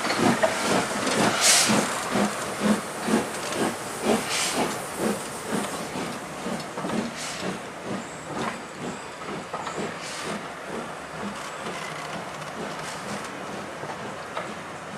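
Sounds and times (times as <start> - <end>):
steam hissing: 0.0 - 10.9
steam locomotive exhaust beats: 0.0 - 14.9.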